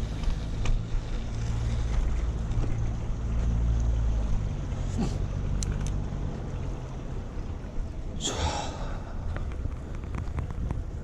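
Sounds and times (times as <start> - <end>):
bicycle rolling: 0.0 - 4.5, 9.0 - 11.0
wind rumbling on microphone: 0.0 - 11.0.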